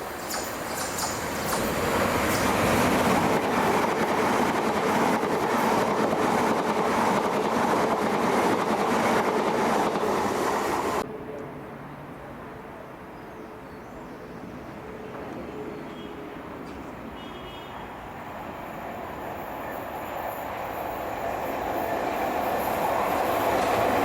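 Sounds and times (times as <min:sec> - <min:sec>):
electric train wheels on rails: 0:00.0 - 0:11.0, 0:18.0 - 0:24.0.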